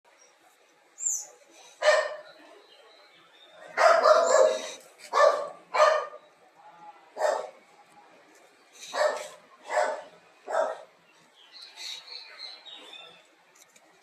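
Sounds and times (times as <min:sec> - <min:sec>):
dog barking: 0:01.8 - 0:02.3, 0:03.8 - 0:06.2, 0:07.2 - 0:07.6, 0:08.9 - 0:10.9.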